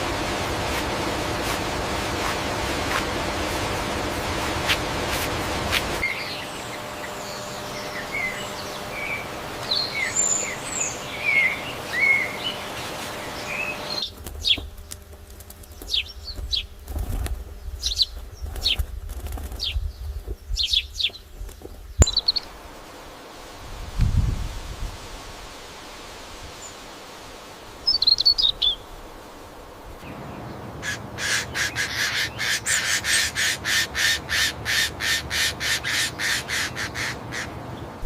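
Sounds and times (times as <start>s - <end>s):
birds chirping: 0.0s - 23.6s, 24.5s - 38.0s
steady hiss: 0.0s - 38.0s
sharp falling bird chirps: 22.0s - 22.6s.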